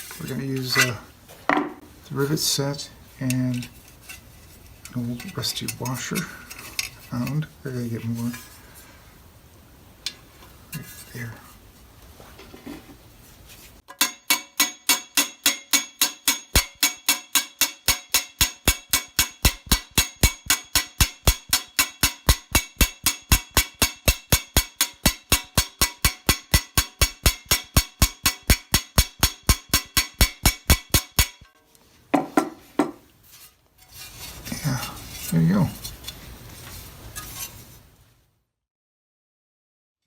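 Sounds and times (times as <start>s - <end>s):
hammer ringing on metal: 13.9s - 31.5s.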